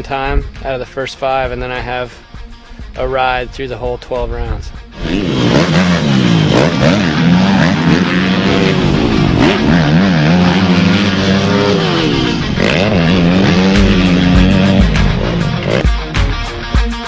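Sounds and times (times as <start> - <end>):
dirt bike engine revving: 4.9 - 16.7.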